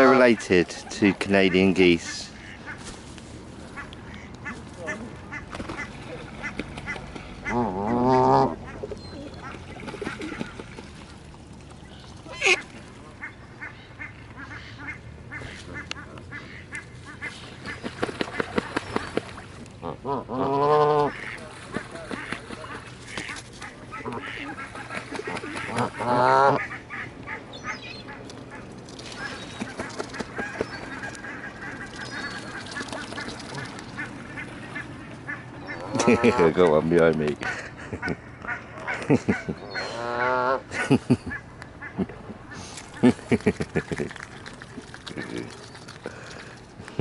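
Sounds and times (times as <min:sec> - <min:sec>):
geese calling: 0:00.0 - 0:02.8, 0:11.8 - 0:43.2.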